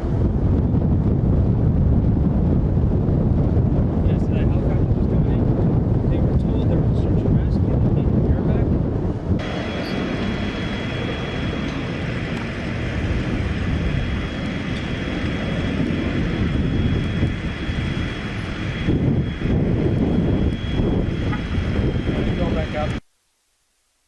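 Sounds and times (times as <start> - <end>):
propeller engine droning: 0.0 - 23.0
faint high whine: 9.4 - 24.0.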